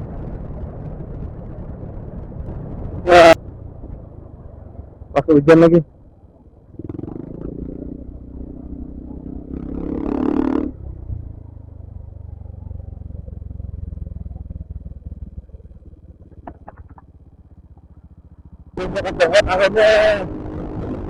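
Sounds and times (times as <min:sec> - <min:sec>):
scooter engine running: 0:10.7 - 0:21.0.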